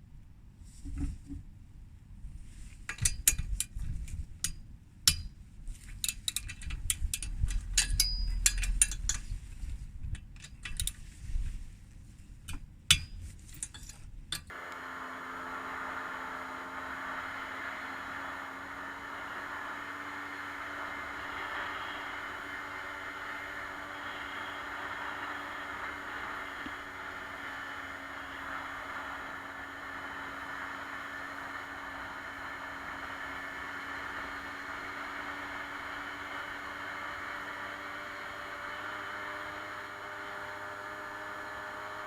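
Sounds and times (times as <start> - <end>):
light metallic clinks: 6.0 - 9.3
two-stroke engine running: 14.5 - 42.0.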